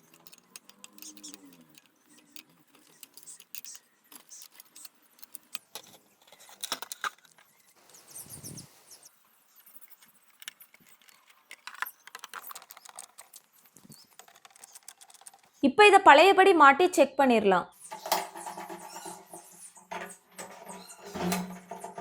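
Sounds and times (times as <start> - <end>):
metallic clicks of tools and parts: 0.0 - 5.9.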